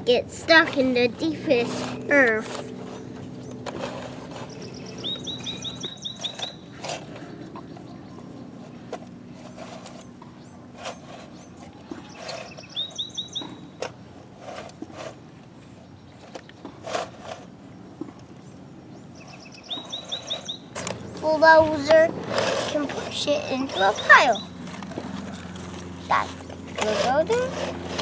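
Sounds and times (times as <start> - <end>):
toy trucks scraping dirt: 0.0 - 7.6, 8.6 - 15.3, 16.2 - 17.6, 19.3 - 28.0
outdoor background noise: 0.0 - 28.0
bird chirping: 4.4 - 8.5, 11.3 - 13.8, 18.4 - 21.3, 23.7 - 24.6.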